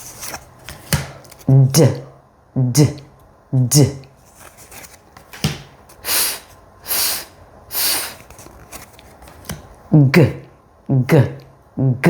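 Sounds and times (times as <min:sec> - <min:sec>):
person making breathy f sounds: 0:06.0 - 0:08.2.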